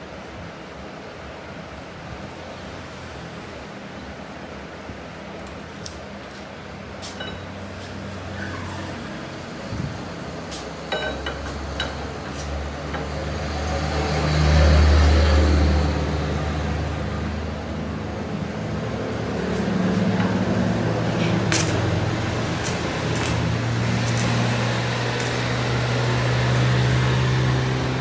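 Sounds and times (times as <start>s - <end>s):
machine motor humming: 18.9s - 28.0s.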